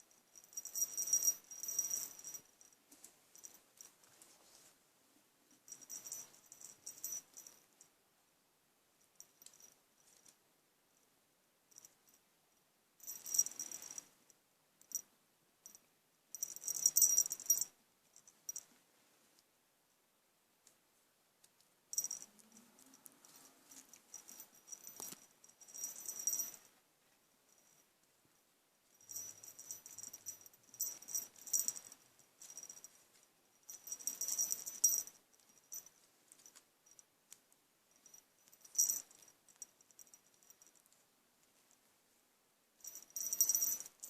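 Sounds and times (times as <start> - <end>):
light rattling and jingling: 0.0 - 4.7, 5.5 - 7.9, 9.1 - 10.4, 13.0 - 14.2, 14.9 - 18.8, 21.9 - 26.8, 27.4 - 27.9, 28.8 - 41.8, 42.8 - 44.0.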